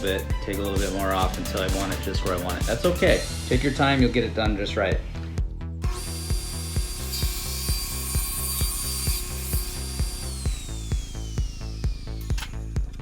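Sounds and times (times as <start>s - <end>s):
background music with steady beat: 0.0s - 13.0s
saw blade whine spinning down: 5.8s - 13.0s
table saw cutting wood: 5.8s - 13.0s.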